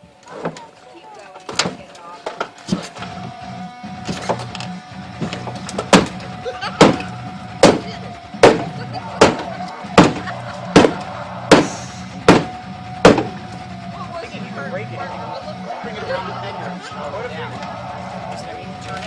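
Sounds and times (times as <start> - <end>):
metal striking car door: 4.0 - 13.4.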